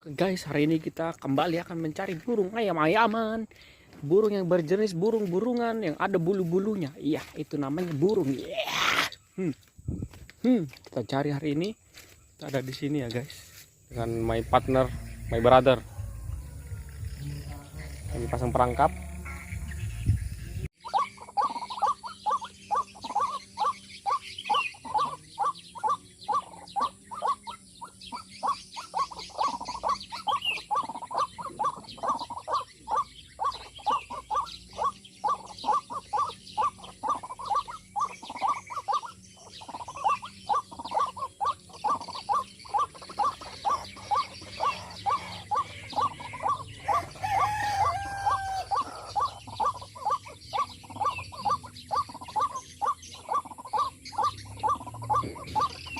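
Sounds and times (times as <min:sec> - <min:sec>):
bird clucking notes: 0:00.0 - 0:11.8, 0:13.9 - 0:55.9
falling bird call: 0:08.3 - 0:09.6, 0:20.8 - 0:55.9.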